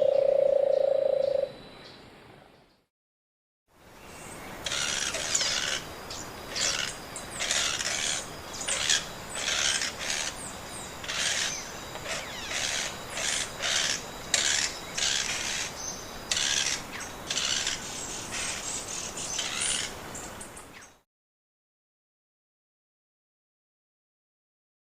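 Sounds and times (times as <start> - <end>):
bird rasping chatter: 4.6 - 5.8, 6.5 - 10.4, 11.0 - 15.7, 16.3 - 18.7.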